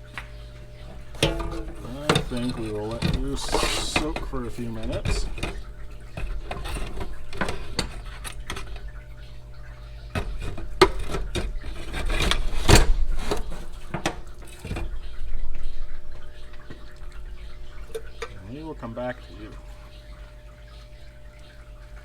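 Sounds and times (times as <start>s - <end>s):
liquid sloshing and dripping: 0.0s - 22.0s.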